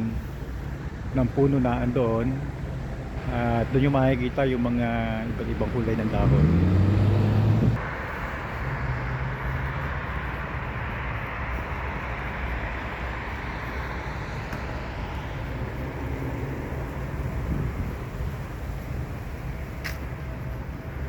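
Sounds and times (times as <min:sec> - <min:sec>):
road traffic rushing: 0:00.0 - 0:21.0.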